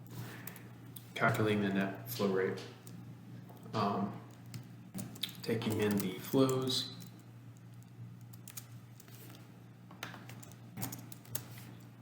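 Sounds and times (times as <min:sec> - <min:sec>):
steady low hum: 0:00.0 - 0:12.0
computer keyboard typing: 0:04.3 - 0:09.4, 0:10.0 - 0:11.7.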